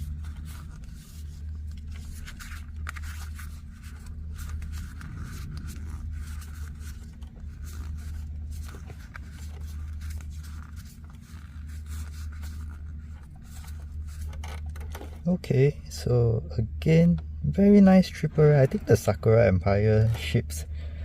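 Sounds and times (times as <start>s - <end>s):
cards and packaging rustling: 0.0s - 15.3s
steady low hum: 0.0s - 21.0s.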